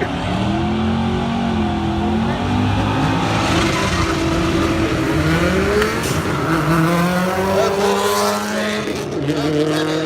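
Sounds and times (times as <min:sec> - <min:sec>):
drag racing car engines: 0:00.0 - 0:10.0.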